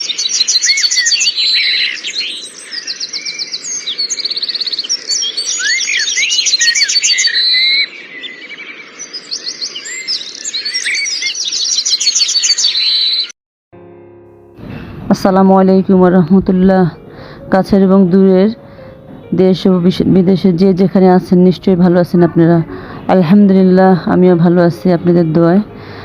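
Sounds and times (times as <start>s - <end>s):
small birds chirping: 0.0s - 13.4s.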